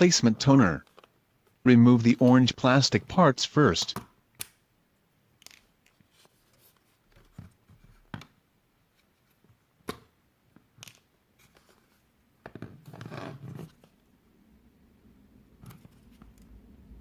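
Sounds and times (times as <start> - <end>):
sharp plastic snaps: 4.0 - 4.6
plastic clicks and handling: 5.3 - 6.1, 9.9 - 11.1.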